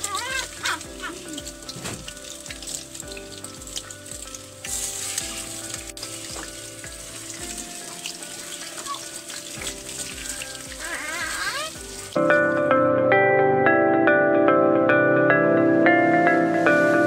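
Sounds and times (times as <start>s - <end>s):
chicken sizzling in hot oil: 0.0s - 12.2s.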